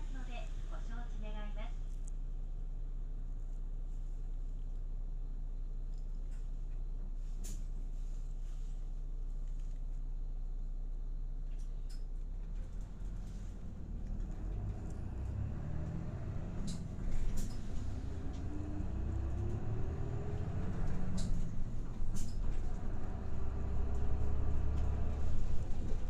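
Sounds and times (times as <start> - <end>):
bus engine rumbling: 0.0 - 3.2, 11.5 - 26.0
rising engine whine: 12.6 - 26.0.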